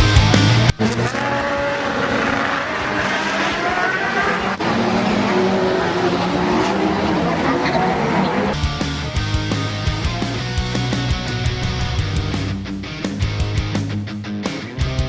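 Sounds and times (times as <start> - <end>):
music with a beat: 0.0 - 0.9, 8.6 - 15.0
racing car engine accelerating: 0.0 - 14.0.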